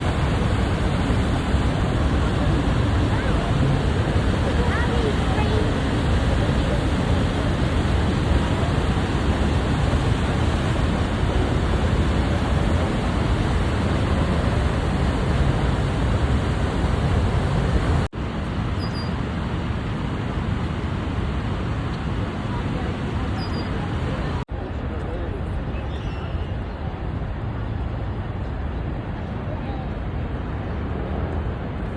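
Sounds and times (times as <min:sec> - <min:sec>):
waterfall rushing: 0:00.0 - 0:18.1.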